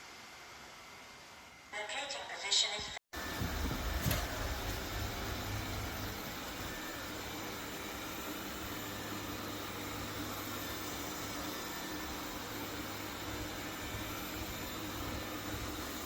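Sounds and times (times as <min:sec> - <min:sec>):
robot vacuum whirring: 0:03.2 - 0:16.0.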